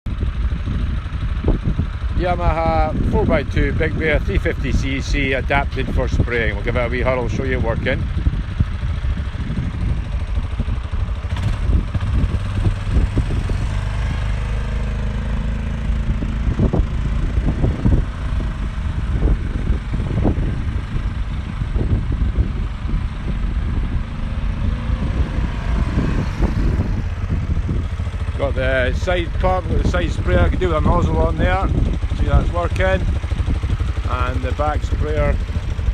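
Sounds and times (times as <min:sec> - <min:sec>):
quad bike engine rumbling: 0:00.1 - 0:35.9.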